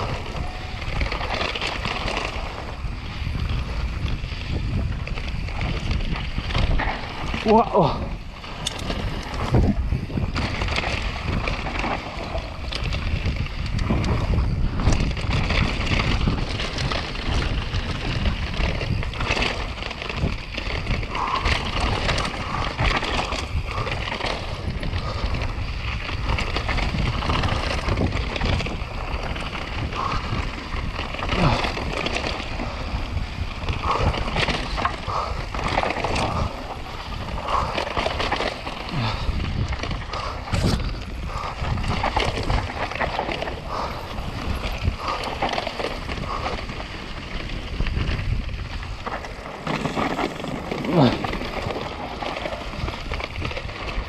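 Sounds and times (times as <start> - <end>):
bike knocks and rattles: 0.0 - 54.0
wind buffeting microphone: 0.0 - 54.0.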